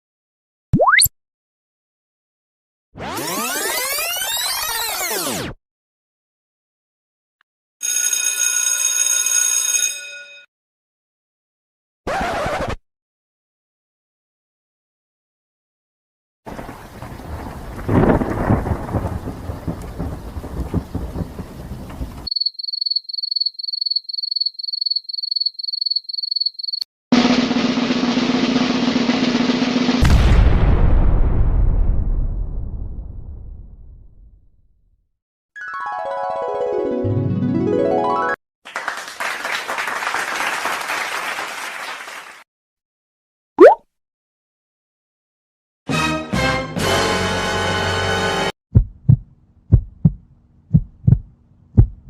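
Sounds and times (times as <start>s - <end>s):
rising electronic blip: 0.8s - 1.1s, 43.6s - 43.8s
rain: 16.5s - 22.3s
thunder rumble: 16.5s - 22.3s, 30.0s - 34.2s
snare drum roll: 27.2s - 30.1s
crowd clapping: 38.7s - 42.5s.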